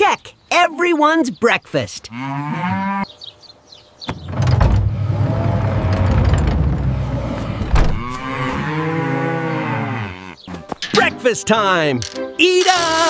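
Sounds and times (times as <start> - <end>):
cow mooing: 2.1 - 3.1, 7.1 - 10.5
low mechanical rumble: 4.1 - 8.2.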